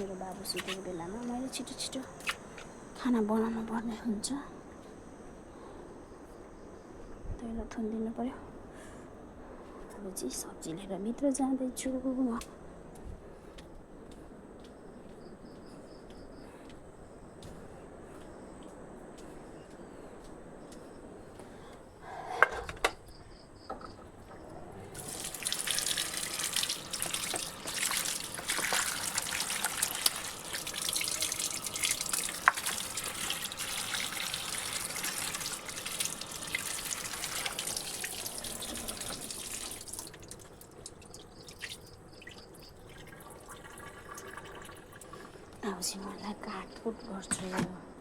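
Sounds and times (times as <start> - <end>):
tap water splashing into sink: 25.0 - 45.1.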